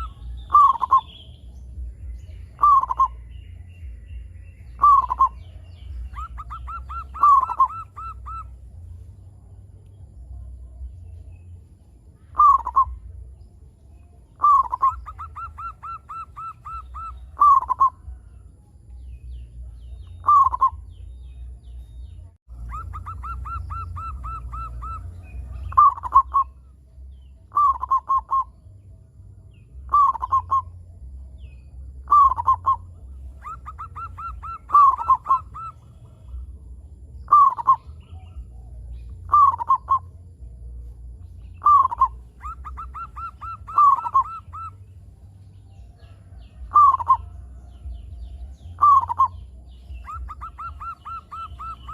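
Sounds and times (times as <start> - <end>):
dove cooing: 0.0 - 1.2, 2.5 - 3.2, 4.8 - 8.8, 12.3 - 13.0, 14.4 - 18.2, 20.0 - 20.9, 22.5 - 26.6, 27.5 - 28.6, 29.9 - 30.8, 32.0 - 36.5, 37.3 - 40.2, 41.6 - 44.9, 45.9 - 51.9
steady low hum: 0.0 - 51.9.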